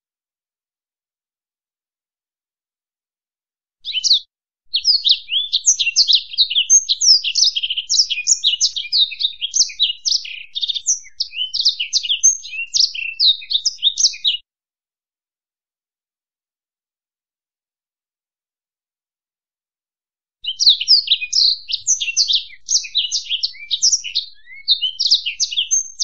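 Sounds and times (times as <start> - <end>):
songbird call: 3.8 - 4.2
songbird twittering trills: 3.8 - 14.4, 20.4 - 26.0.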